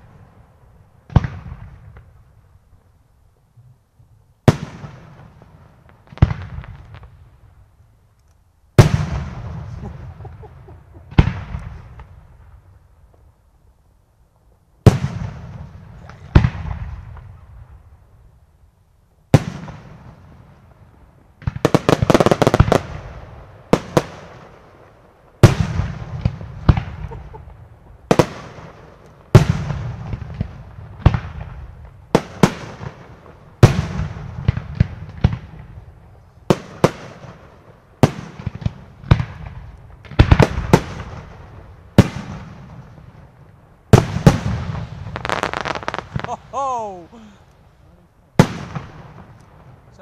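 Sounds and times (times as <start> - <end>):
fireworks bursting with echo: 0.0 - 2.9, 4.4 - 7.8, 8.7 - 13.3, 14.8 - 18.3, 19.3 - 50.0
rapid firework pops: 43.9 - 46.4.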